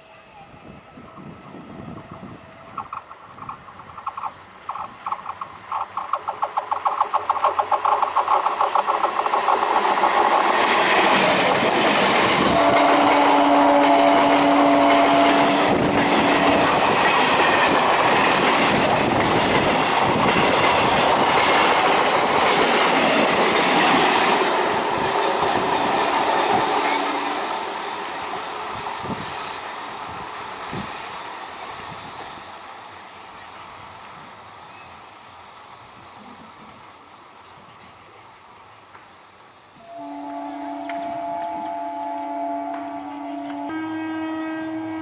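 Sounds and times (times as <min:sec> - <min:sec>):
train rumbling past: 0:00.0 - 0:45.0
train wheels clicking over rail joints: 0:02.7 - 0:32.6.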